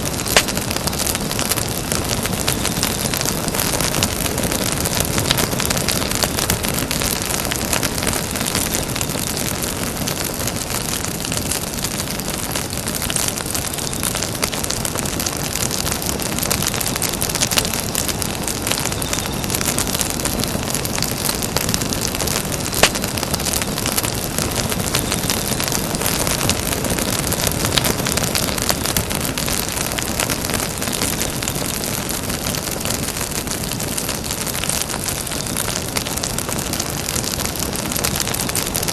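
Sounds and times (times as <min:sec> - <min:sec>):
sharp fire pop: 0:00.0 - 0:00.8, 0:22.6 - 0:23.7
campfire crackling: 0:00.0 - 0:38.9.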